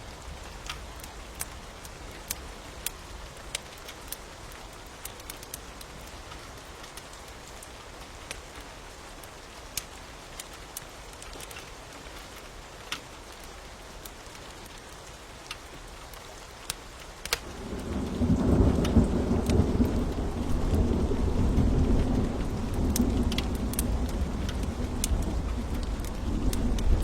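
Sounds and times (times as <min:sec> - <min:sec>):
rain hiss: 0:00.0 - 0:27.0
fire crackling: 0:00.3 - 0:08.6, 0:09.7 - 0:27.0
thunder rumbling: 0:17.4 - 0:27.0.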